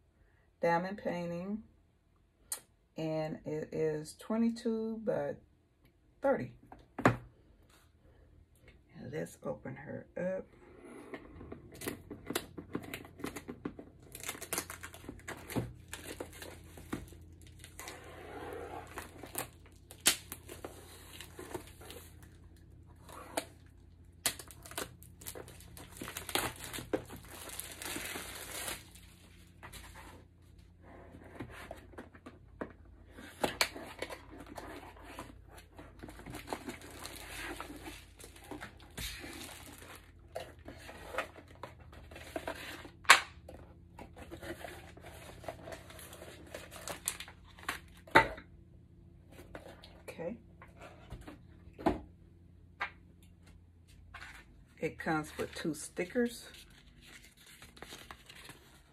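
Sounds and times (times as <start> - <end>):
plastic wrap tearing and crinkling: 14.0 - 18.1, 18.8 - 22.4, 23.0 - 30.0, 36.0 - 41.6, 45.8 - 48.1, 56.6 - 58.9.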